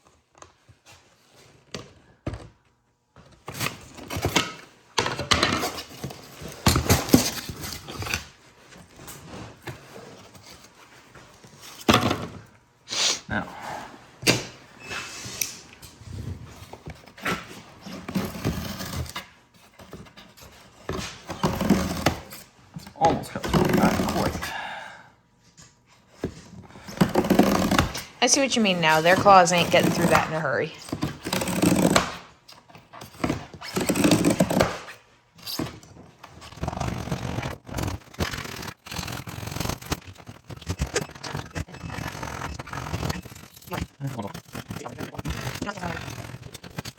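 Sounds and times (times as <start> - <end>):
blade scraping padded material: 14.9 - 22.6, 23.3 - 24.5, 26.2 - 46.9.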